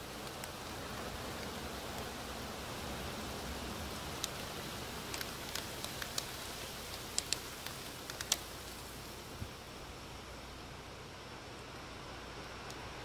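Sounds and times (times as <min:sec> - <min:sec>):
light rain hiss: 0:00.0 - 0:13.0
raindrops tapping hard surface: 0:03.8 - 0:09.0.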